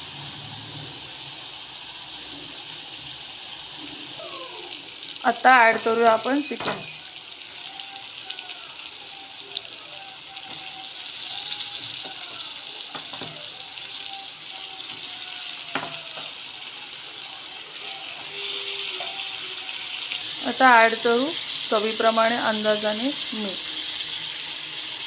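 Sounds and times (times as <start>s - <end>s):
chicken sizzling in oil: 0.0s - 25.0s.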